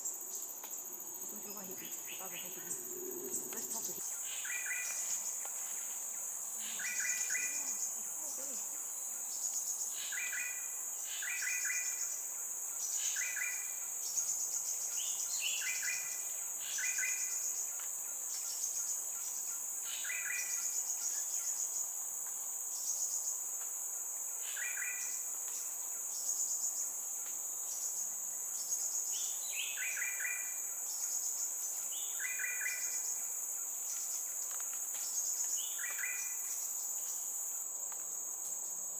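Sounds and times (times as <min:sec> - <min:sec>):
high-pitched insect drone: 0:00.0 - 0:17.7.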